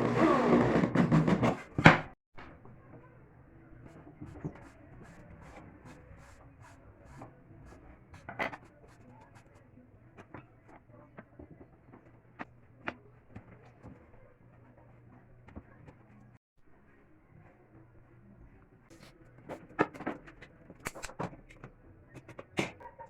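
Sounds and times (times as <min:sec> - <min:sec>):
clicks of small parts handled: 0:19.9 - 0:22.5.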